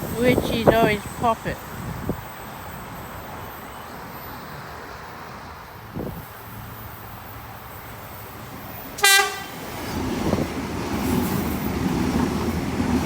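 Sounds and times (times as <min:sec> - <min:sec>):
train rumbling: 0:00.0 - 0:13.0
train horn toot: 0:09.0 - 0:09.6.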